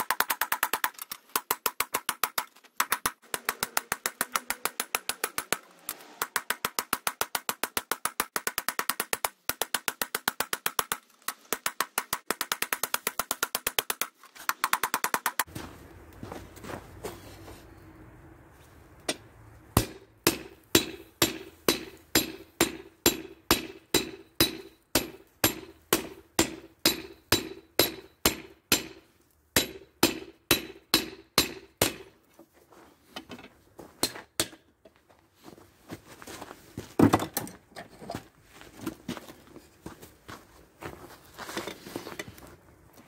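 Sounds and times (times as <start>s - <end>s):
hammer striking steel on anvil: 19.8s - 29.0s, 29.6s - 32.1s, 34.0s - 34.6s.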